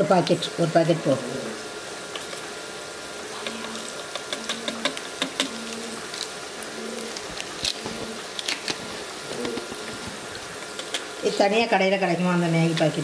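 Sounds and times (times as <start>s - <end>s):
low buzz: 0.9s - 7.2s
vegetables sizzling in oil: 1.6s - 13.0s
crackles and pops: 3.4s - 11.1s.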